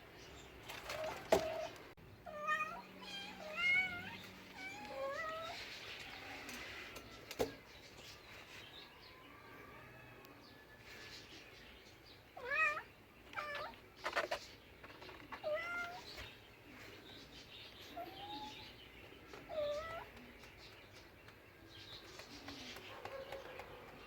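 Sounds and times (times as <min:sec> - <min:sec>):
cat meowing: 0:02.3 - 0:05.6, 0:12.4 - 0:13.8, 0:15.4 - 0:16.1, 0:19.5 - 0:20.1.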